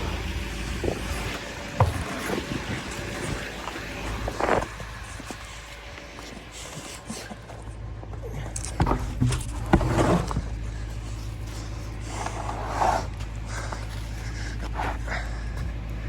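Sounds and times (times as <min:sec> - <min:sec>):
vehicle engine running: 0:00.0 - 0:16.0
rustling scrape: 0:08.8 - 0:15.0.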